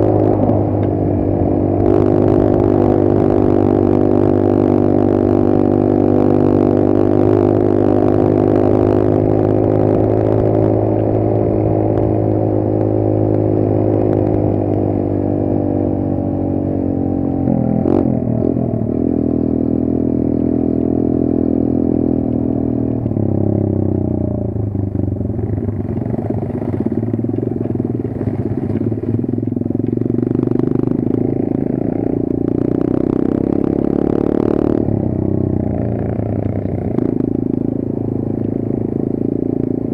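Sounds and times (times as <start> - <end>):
motorbike engine running: 0.0 - 39.9.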